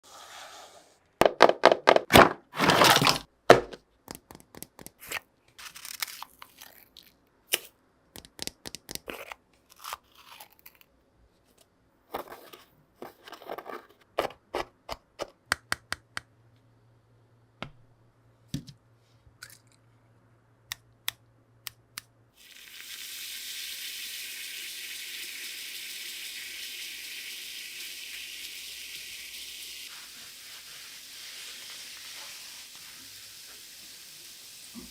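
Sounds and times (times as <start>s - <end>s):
handling crunches and crinkles: 2.6s - 3.2s, 5.6s - 7.2s
fizzing hiss of foaming reaction: 22.4s - 34.9s.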